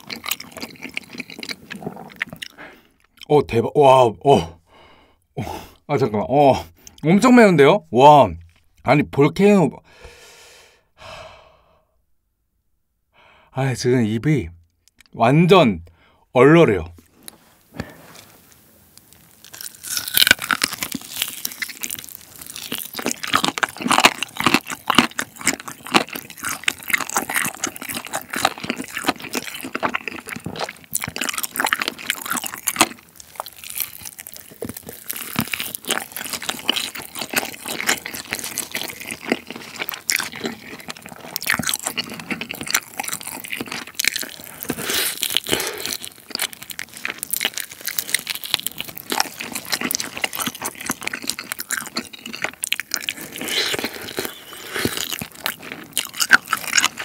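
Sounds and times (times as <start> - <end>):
crunchy chicken being chewed: 0.0 - 3.3, 17.0 - 57.0.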